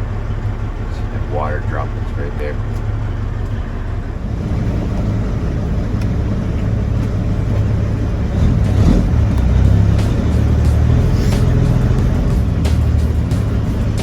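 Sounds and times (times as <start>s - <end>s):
diesel truck engine rumbling: 0.0s - 14.0s.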